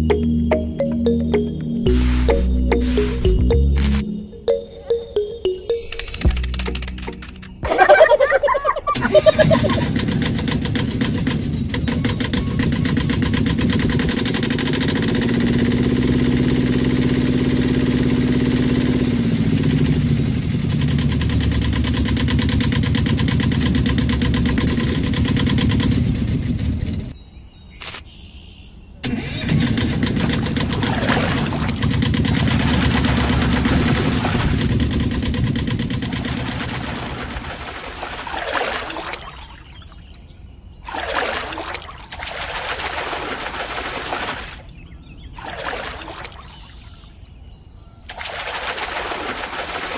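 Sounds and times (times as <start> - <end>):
swishing sweeps: 1.8 - 4.0
small engine running: 1.9 - 4.0, 6.0 - 7.6, 9.0 - 27.2, 29.0 - 37.9.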